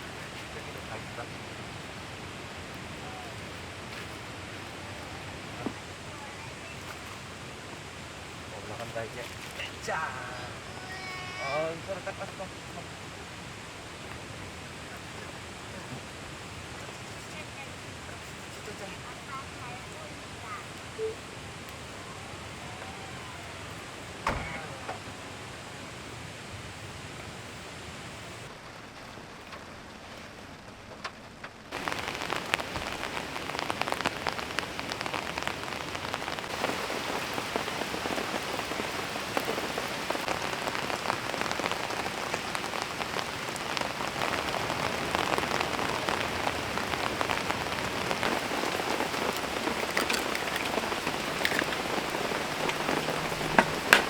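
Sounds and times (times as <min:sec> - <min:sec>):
rain pattering on a surface: 0:00.0 - 0:54.0
single knock: 0:24.2 - 0:24.7.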